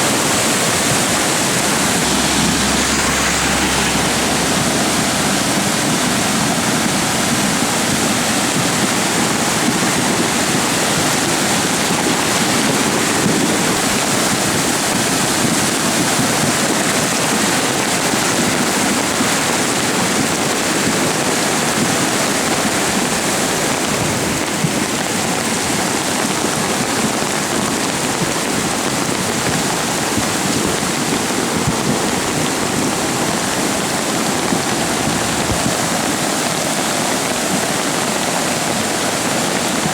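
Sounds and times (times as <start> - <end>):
flooded creek rushing: 22.3 - 39.9.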